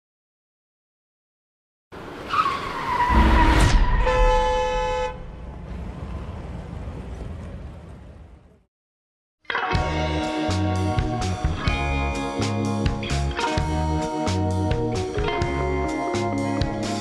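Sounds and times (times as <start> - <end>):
road and engine rumble: 1.9 - 8.6
tyres squealing: 2.2 - 3.9
car horn blast: 3.1 - 5.4.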